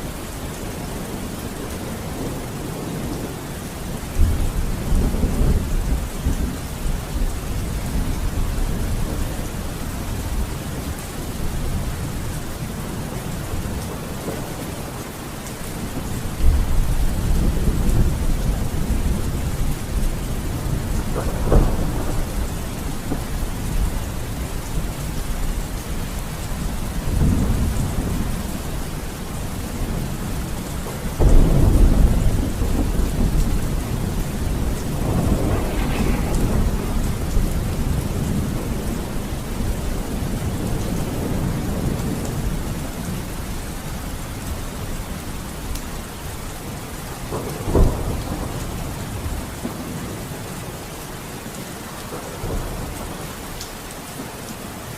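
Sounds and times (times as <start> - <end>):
heavy rain: 0.0 - 54.9
thunder rumbling: 15.7 - 43.9, 47.2 - 50.4.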